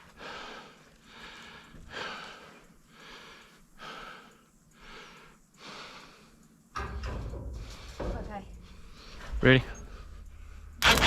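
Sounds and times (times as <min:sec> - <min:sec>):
person breathing hard: 0:00.0 - 0:06.6.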